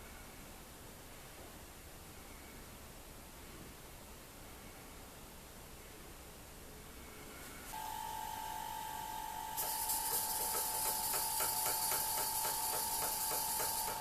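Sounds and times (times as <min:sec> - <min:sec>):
steady high whine: 0:07.0 - 0:14.0
loud steam hiss: 0:09.6 - 0:14.0.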